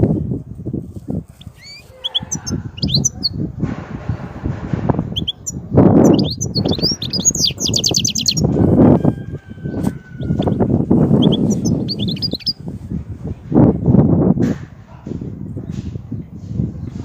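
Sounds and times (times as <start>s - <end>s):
goldfinch twittering song: 1.4s - 3.4s, 5.1s - 8.5s, 10.2s - 12.6s
low rustling and thumping: 3.5s - 5.2s.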